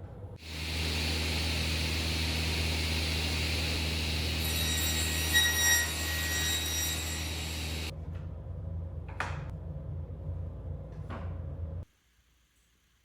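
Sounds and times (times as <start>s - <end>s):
low hum: 0.0s - 11.8s
woodworking machine high whine: 0.4s - 7.9s.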